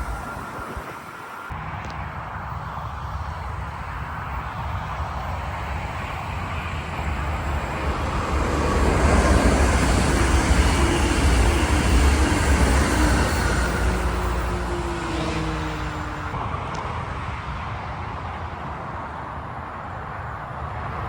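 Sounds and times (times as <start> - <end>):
train wheels rumbling on rails: 0.0 - 16.4.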